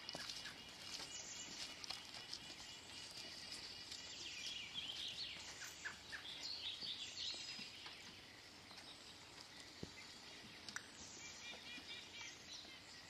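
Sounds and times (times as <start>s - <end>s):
faint outdoor background noise: 0.0s - 13.0s
small birds chirping and twittering: 0.0s - 13.0s.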